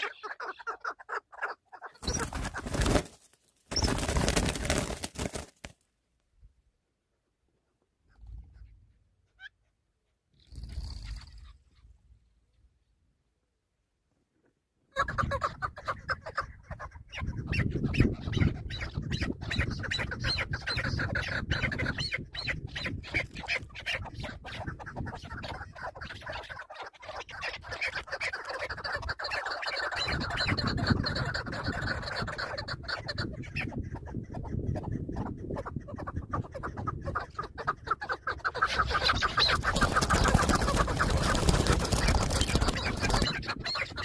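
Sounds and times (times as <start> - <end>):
partridges squawking: 0.0 - 3.0, 3.7 - 4.5, 36.4 - 44.0.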